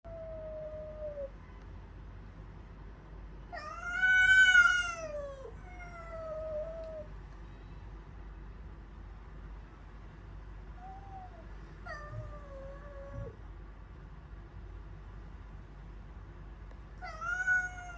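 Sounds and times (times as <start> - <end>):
cat meowing: 3.6 - 7.1, 10.8 - 13.4, 17.0 - 17.9.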